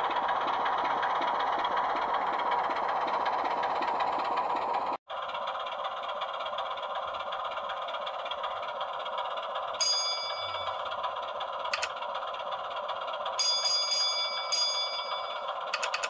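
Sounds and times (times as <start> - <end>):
model train motor and wheels humming: 0.0 - 16.0
bell-like metallic rings: 9.8 - 10.9, 13.4 - 15.6
sharp click: 11.7 - 11.9, 15.7 - 16.0.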